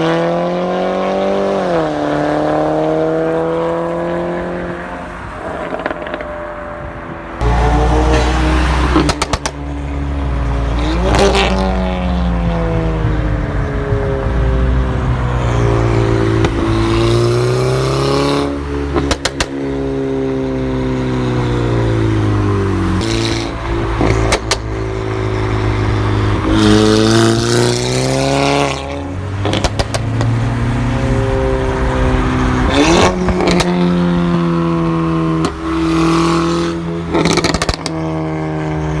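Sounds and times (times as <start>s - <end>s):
car engine revving: 0.0s - 39.0s
exhaust crackling pops: 8.9s - 9.6s, 18.9s - 19.6s, 23.0s - 24.7s, 29.4s - 30.4s, 35.4s - 38.0s.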